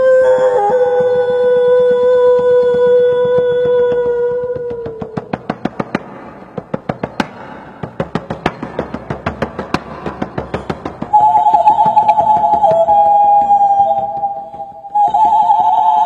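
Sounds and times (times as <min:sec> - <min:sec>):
rapid dry taps: 0:00.6 - 0:15.6
held tone: 0:11.1 - 0:16.0
higher held tone: 0:11.1 - 0:16.0.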